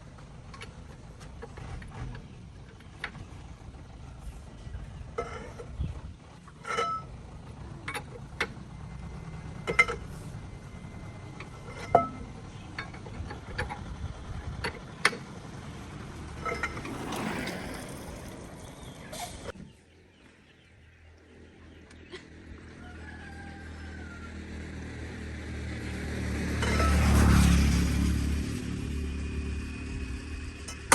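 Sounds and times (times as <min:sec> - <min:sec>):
low steady rumble: 0:00.0 - 0:19.5
metal tools clinking and knocking: 0:06.6 - 0:07.1.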